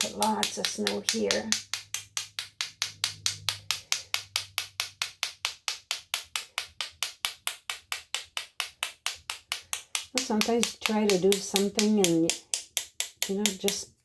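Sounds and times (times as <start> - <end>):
paintbrush tapping: 0.0 - 13.9.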